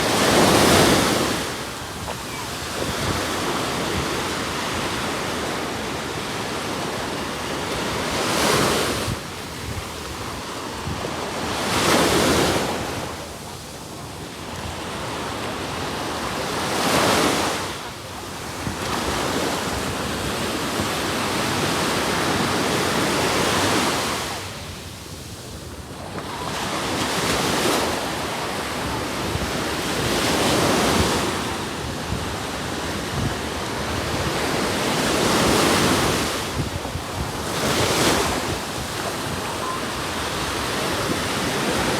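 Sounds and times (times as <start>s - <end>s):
sea waves breaking on sand: 0.0s - 13.5s, 14.2s - 41.9s
wind buffeting microphone: 28.8s - 41.9s.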